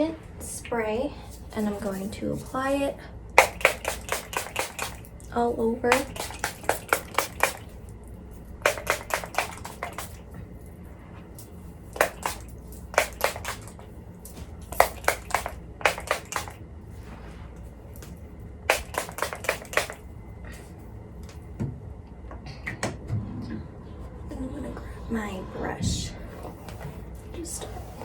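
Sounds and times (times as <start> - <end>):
spray bottle hissing sprays: 3.4 - 5.1, 5.9 - 7.8, 8.6 - 10.2, 11.9 - 13.8, 14.6 - 16.6, 18.7 - 20.1.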